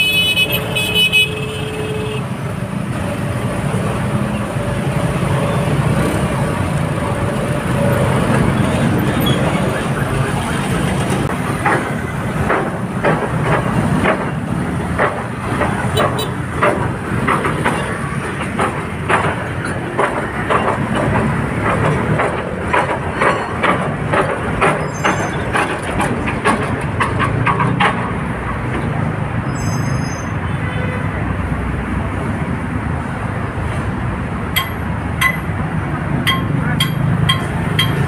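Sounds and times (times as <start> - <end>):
heavy road traffic rumbling: 0.0 - 38.0
metallic knocks: 11.2 - 28.9, 34.5 - 38.0.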